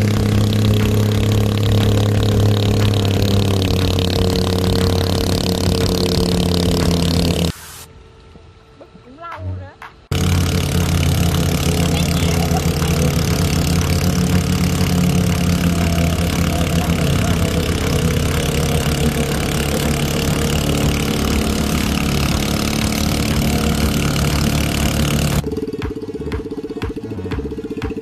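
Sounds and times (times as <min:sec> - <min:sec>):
scooter engine running: 0:00.0 - 0:07.6, 0:10.1 - 0:28.0
steady tone with regular beat: 0:00.0 - 0:07.9, 0:09.2 - 0:28.0
loud hiss: 0:05.4 - 0:08.0.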